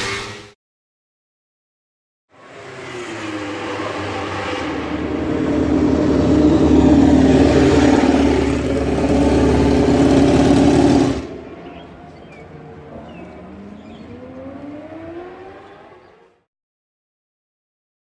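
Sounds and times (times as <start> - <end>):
motorcycle engine at high revs: 2.5 - 12.4.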